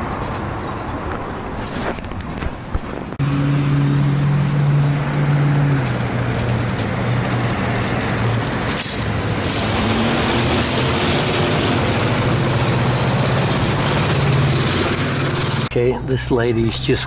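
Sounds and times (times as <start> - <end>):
road noise: 0.0 - 17.0
vehicle engine running: 3.2 - 15.7.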